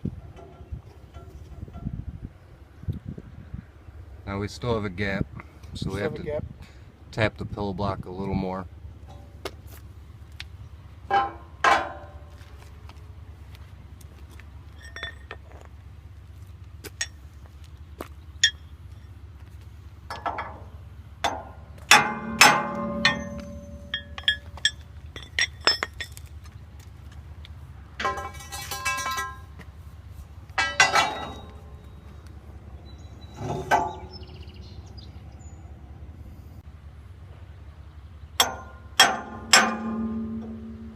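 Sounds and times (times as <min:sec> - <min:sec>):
steady low hum: 0:08.6 - 0:40.9
hammer tapping metal housing: 0:11.1 - 0:12.3, 0:20.1 - 0:26.2, 0:28.0 - 0:29.6, 0:30.6 - 0:32.0, 0:33.4 - 0:34.3, 0:38.4 - 0:40.9.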